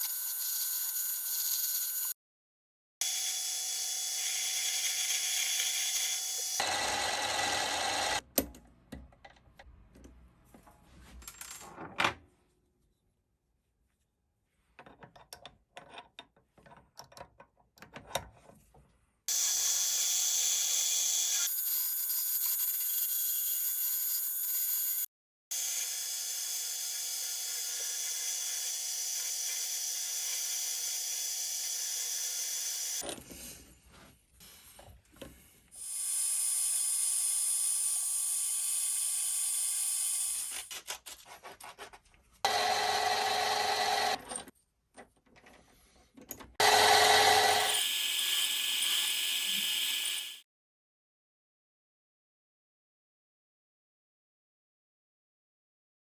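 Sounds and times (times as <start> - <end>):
metal lathe whining: 42.5 - 44.4, 46.6 - 50.4.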